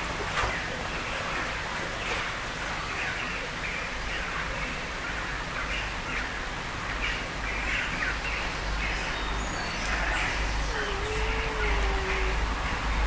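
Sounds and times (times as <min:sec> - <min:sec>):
low outdoor rumble: 0:08.3 - 0:13.0.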